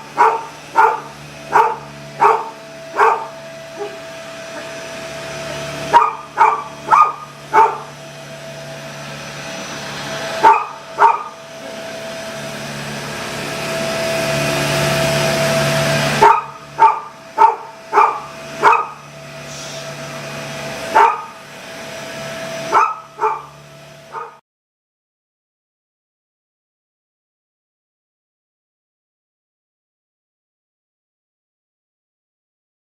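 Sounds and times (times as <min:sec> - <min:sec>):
vacuum cleaner humming: 0:00.0 - 0:24.4
dog barking: 0:00.1 - 0:04.0, 0:05.9 - 0:08.0, 0:10.4 - 0:11.4, 0:16.2 - 0:19.0, 0:20.9 - 0:21.4, 0:22.7 - 0:24.4.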